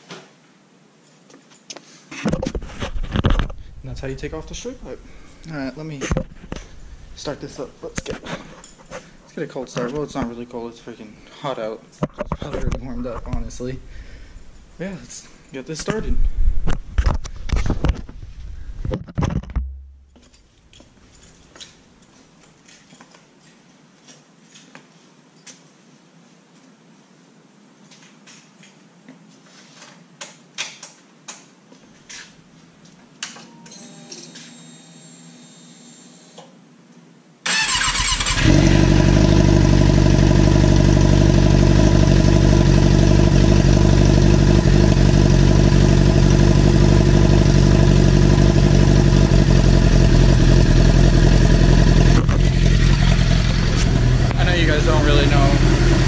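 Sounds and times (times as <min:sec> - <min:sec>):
motorcycle engine idling loud: 0:38.4 - 0:56.0.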